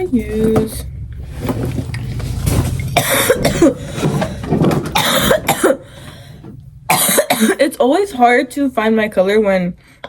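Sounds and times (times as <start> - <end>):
steady low hum: 0.0 - 10.0
person coughing: 3.0 - 4.0, 4.9 - 5.9, 6.9 - 7.7.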